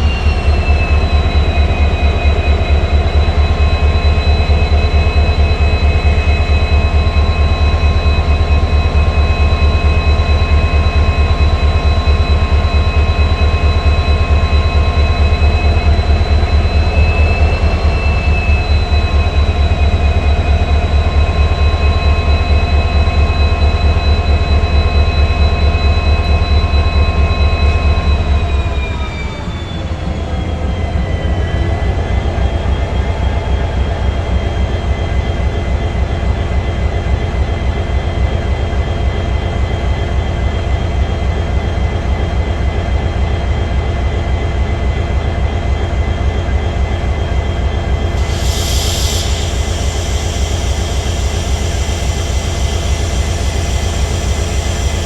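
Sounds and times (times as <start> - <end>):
diesel locomotive engine whining: 0.0 - 55.0
short hiss: 48.2 - 54.5.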